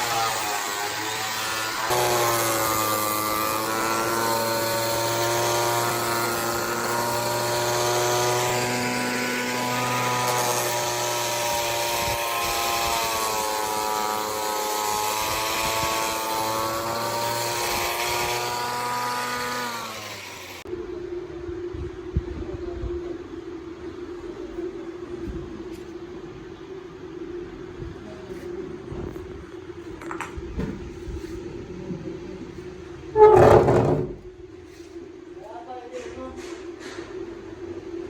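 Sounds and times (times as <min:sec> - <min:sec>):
electric power tool motor whine: 0:00.0 - 0:20.6.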